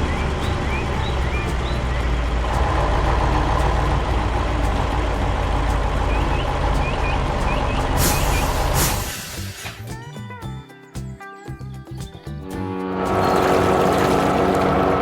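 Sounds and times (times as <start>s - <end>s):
heavy truck engine rumble: 0.0s - 10.1s, 12.8s - 15.0s
short high chirps: 6.3s - 9.9s.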